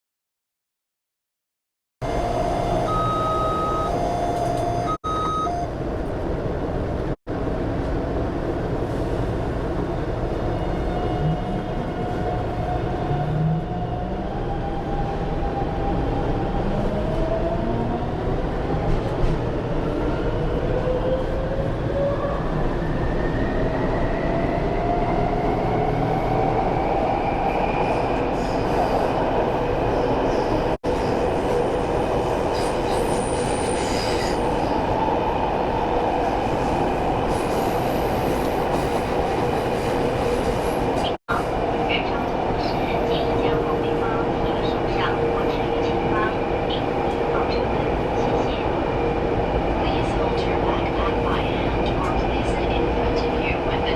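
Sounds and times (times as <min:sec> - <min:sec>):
train motor whine: 0:02.0 - 0:05.6
short electronic tone: 0:02.0 - 0:05.7.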